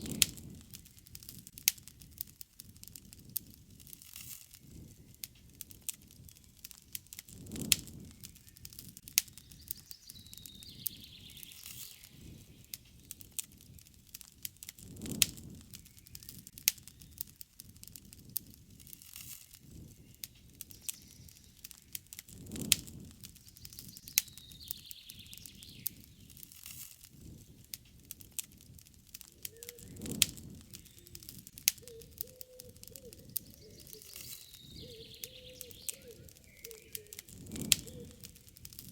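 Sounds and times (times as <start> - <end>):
wood fire crackling and popping: 0.0 - 38.9
low steady cooing call: 29.3 - 38.9.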